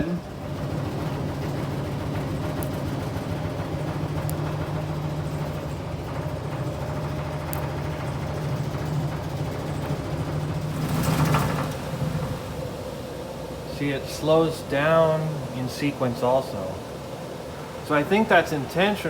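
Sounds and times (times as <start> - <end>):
furnace blower fan humming: 0.0 - 19.0.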